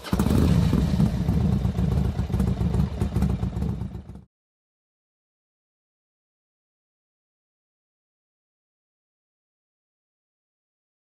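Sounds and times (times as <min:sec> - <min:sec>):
motorcycle engine running roughly: 0:00.0 - 0:04.3.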